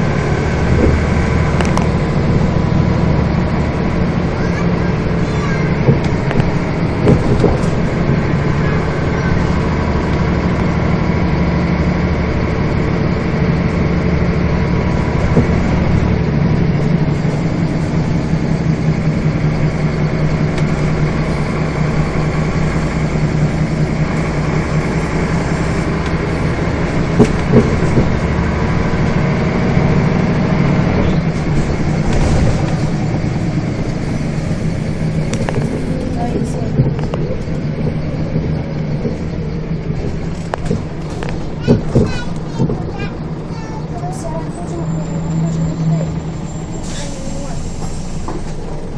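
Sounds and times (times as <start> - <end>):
bus diesel engine running: 0.0 - 48.9.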